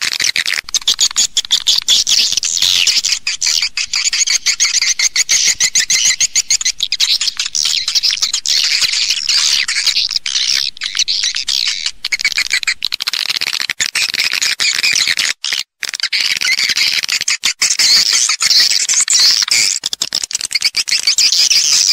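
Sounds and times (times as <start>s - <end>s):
flock of swiftlets twittering: 0.1s - 13.2s.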